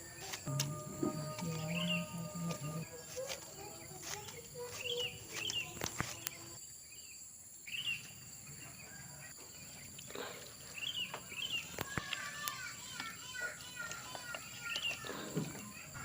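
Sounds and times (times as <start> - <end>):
high insect drone: 0.0 - 9.0.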